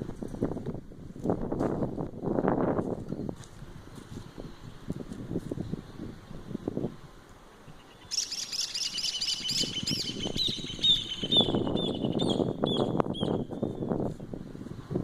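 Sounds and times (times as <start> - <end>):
songbird singing: 3.0 - 3.4, 7.4 - 14.1.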